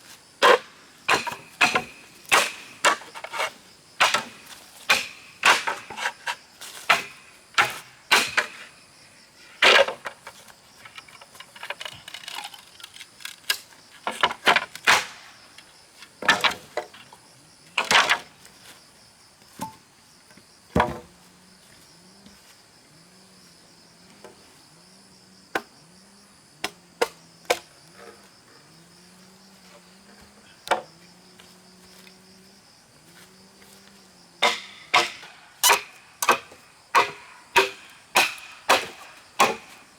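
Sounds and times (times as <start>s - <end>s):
insect buzzing: 18.5s - 38.1s.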